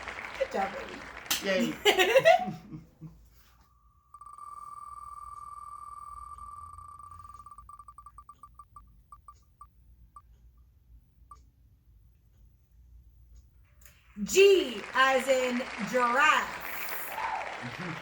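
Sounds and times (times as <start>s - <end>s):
rapid electronic ticking: 4.0s - 10.7s.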